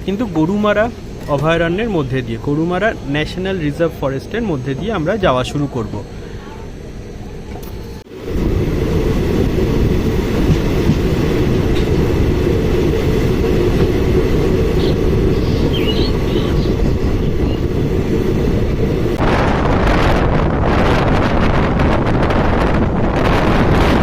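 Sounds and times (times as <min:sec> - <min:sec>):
train wheels rumbling on rails: 0:07.4 - 0:24.0
wind hitting microphone: 0:08.1 - 0:24.0.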